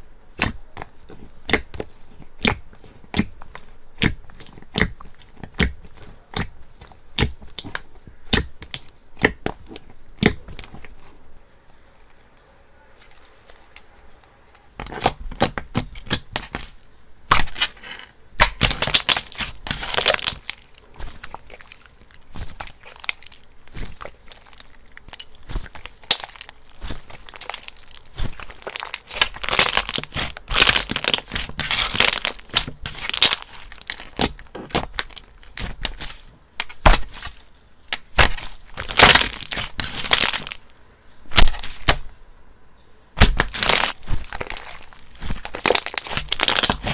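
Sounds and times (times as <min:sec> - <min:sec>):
slime clicking and popping: 0:00.3 - 0:10.9, 0:18.4 - 0:40.6, 0:43.2 - 0:46.9.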